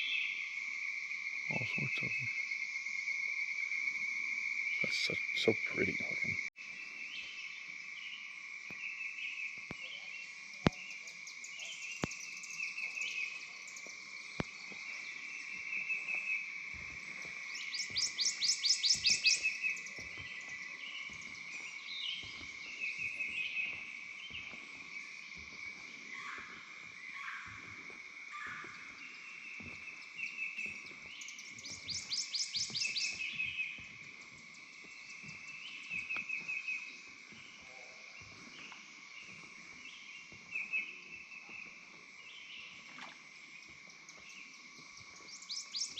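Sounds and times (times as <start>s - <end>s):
insects and frogs droning: 0.0s - 45.9s.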